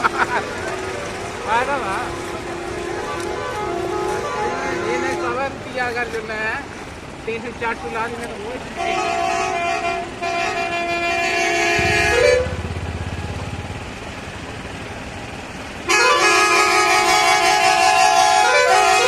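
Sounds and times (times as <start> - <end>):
vehicle horn blast: 8.8 - 13.5, 15.9 - 19.0
low rumble: 11.8 - 15.5.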